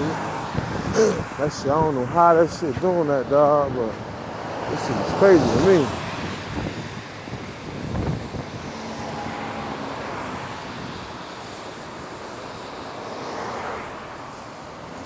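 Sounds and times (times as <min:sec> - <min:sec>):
wind buffeting microphone: 0:00.0 - 0:12.3.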